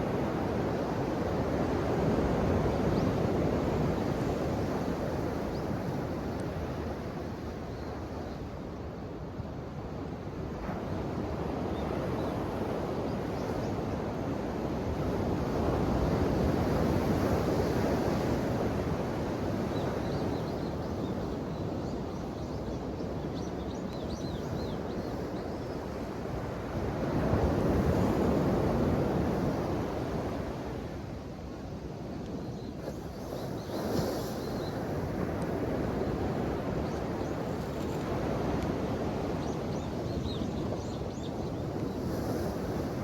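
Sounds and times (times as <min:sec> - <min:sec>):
ocean surf washing ashore: 0:26.1 - 0:43.0.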